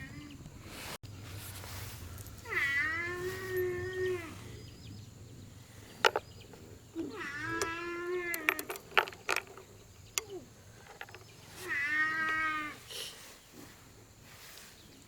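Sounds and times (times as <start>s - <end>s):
animal calling: 6.2s - 8.7s, 9.9s - 13.0s.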